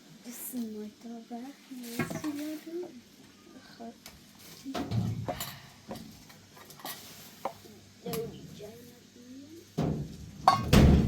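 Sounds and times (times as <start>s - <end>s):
loud thump: 10.7s - 11.0s.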